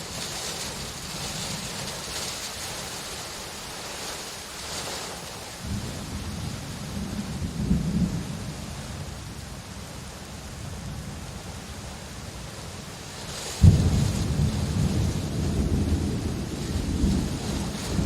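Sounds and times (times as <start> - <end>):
thunder rumbling: 0.0 - 3.0, 5.6 - 9.1, 13.6 - 18.0
steady rain: 0.0 - 18.0
thunder crack: 13.6 - 18.0.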